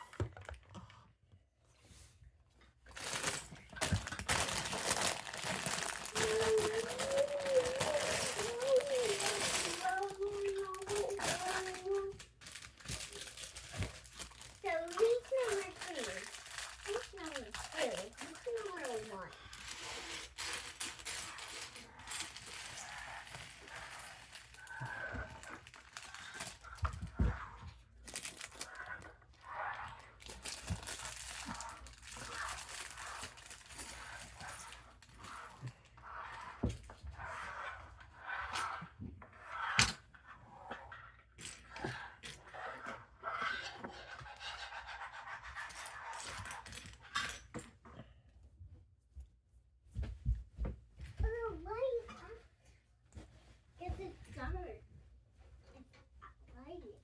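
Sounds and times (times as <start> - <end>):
plastic bags rustling and crinkling: 2.8 - 37.3.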